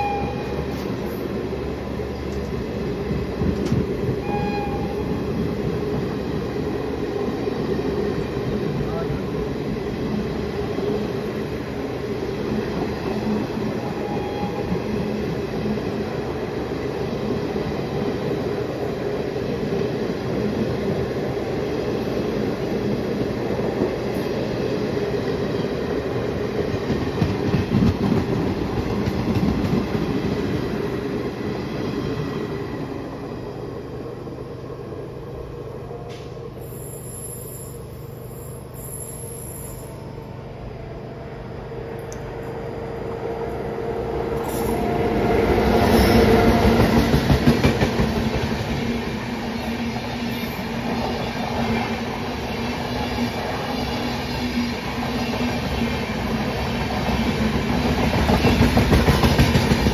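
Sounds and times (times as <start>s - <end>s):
train rumbling over rails: 0.0s - 59.9s.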